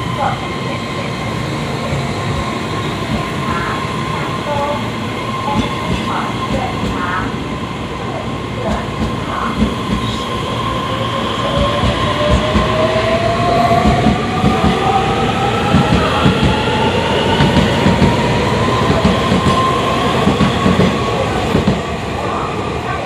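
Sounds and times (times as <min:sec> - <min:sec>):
train inverter whining: 0:00.0 - 0:23.0
wheels rumbling on rail: 0:00.0 - 0:23.0.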